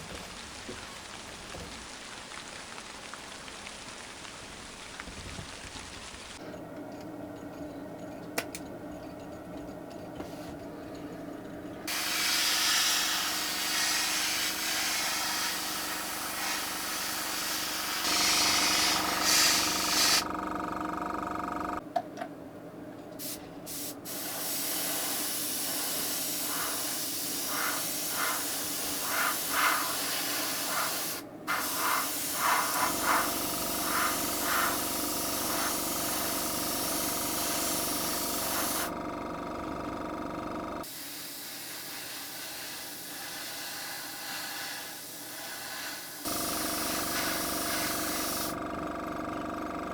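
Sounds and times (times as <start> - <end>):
hissing spray: 11.9 - 20.3, 23.2 - 38.9, 40.8 - 48.6.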